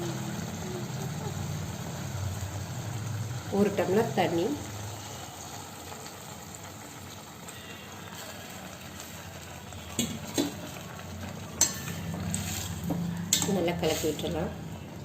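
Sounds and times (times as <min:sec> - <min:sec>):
food sizzling in a pan: 0:00.0 - 0:14.9
utensil clinking against pan: 0:11.6 - 0:14.1.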